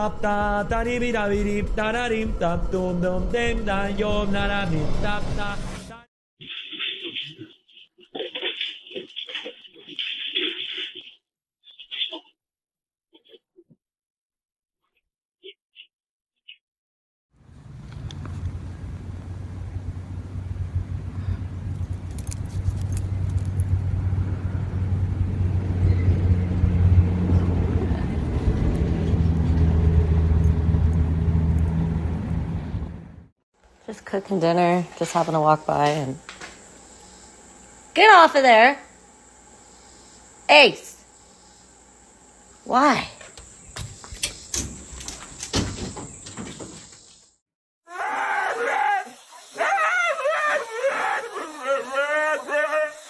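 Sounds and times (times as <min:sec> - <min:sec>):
low mechanical hum: 0:17.4 - 0:47.0
sharp knocks and clatters: 0:43.8 - 0:47.1
dog howling: 0:47.9 - 0:53.0.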